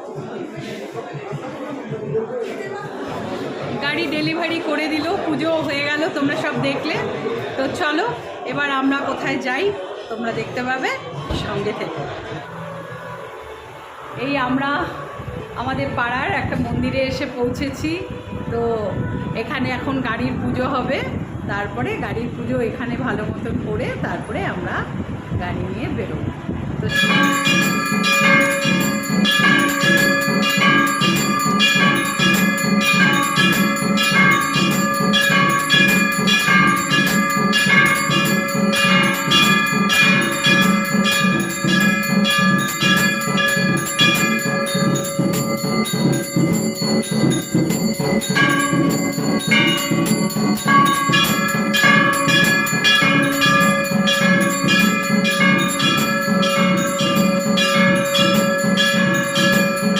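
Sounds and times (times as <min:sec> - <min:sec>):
temple bells ringing: 0:26.8 - 0:59.9.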